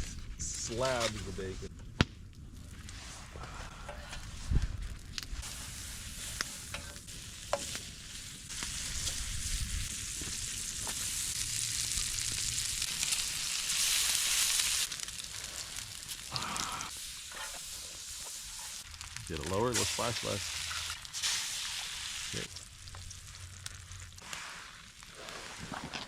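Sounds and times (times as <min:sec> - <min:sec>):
bacon sizzling in grease: 0:05.4 - 0:25.4
grease popping: 0:18.8 - 0:26.0.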